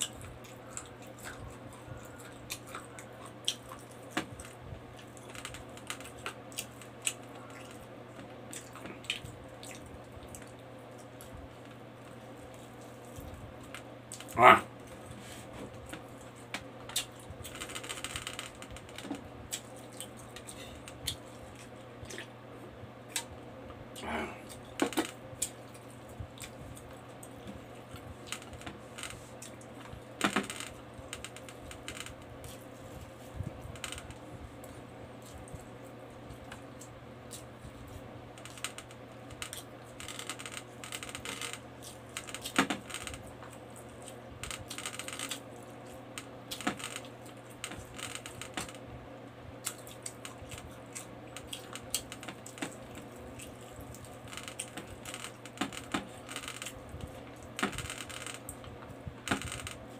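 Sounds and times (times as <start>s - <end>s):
chewing and lip smacking: 0.0s - 7.9s, 8.5s - 15.2s, 19.4s - 22.3s, 49.6s - 55.4s
steady low hum: 0.0s - 59.9s.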